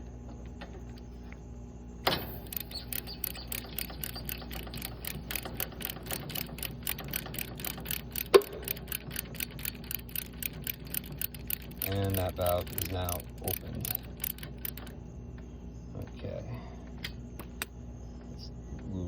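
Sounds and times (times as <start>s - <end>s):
ratchet wrench clicking: 2.4s - 14.9s.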